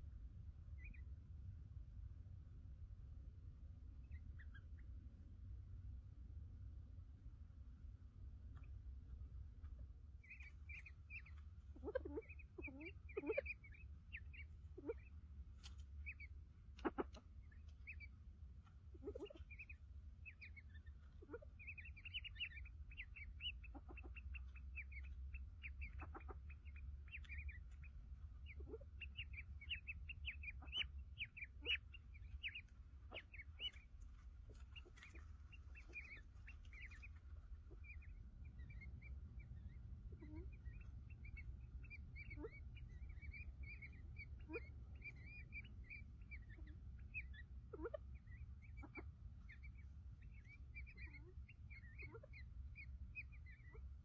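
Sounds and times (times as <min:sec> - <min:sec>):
rapid high-pitched bird chirping: 0:10.2 - 0:15.1, 0:16.0 - 0:18.1, 0:19.0 - 0:53.8.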